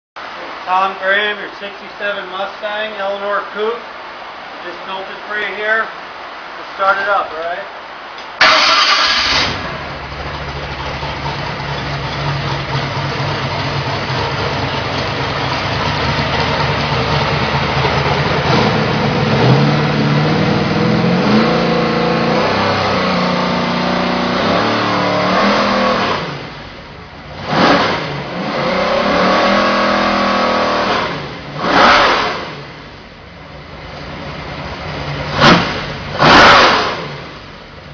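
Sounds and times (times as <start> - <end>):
engine starting with loud burst: 8.4 - 12.9, 35.3 - 37.4
engine idling: 8.4 - 24.4, 32.7 - 36.3
engine revving: 8.4 - 33.0, 33.9 - 37.6.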